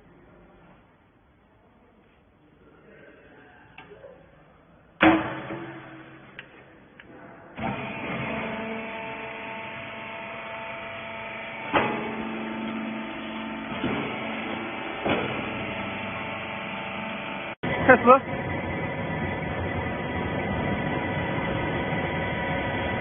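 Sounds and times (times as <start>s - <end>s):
machine clanks: 5.0s - 6.6s, 11.6s - 16.2s
baler motor humming: 7.6s - 23.0s.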